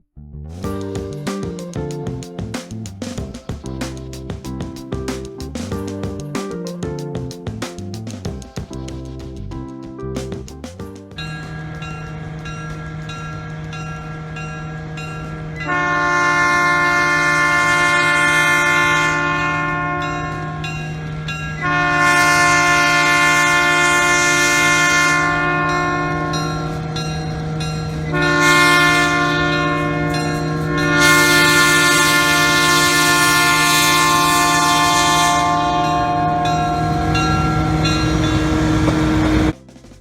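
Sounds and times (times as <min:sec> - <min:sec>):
locomotive air horn blasts: 0:11.6 - 0:39.5.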